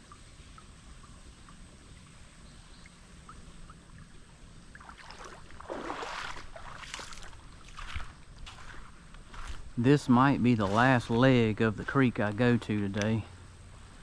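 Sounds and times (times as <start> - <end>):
creek water splashing: 2.8 - 14.0.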